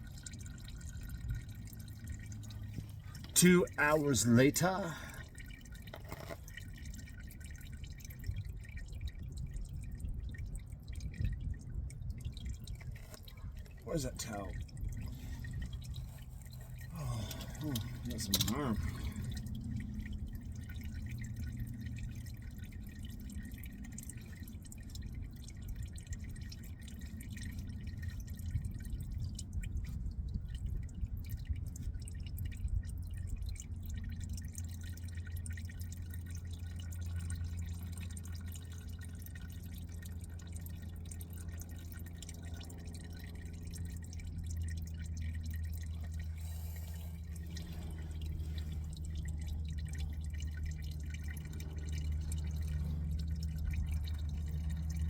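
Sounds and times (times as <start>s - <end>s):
low hum: 0.0s - 55.0s
oil dripping into a pan: 0.0s - 55.0s.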